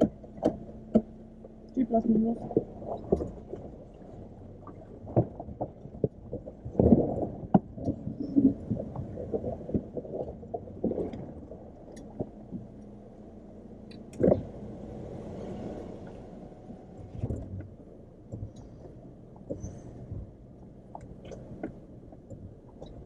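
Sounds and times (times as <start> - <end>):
car engine running low: 0.0 - 23.0.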